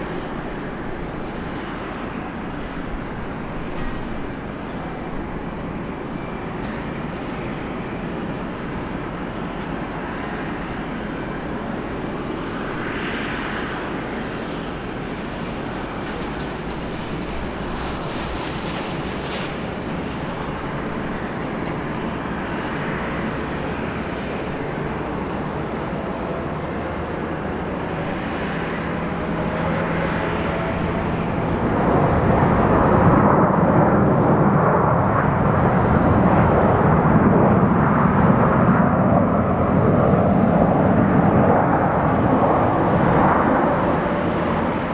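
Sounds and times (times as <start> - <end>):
jet engines rumbling whine: 0.0 - 44.9.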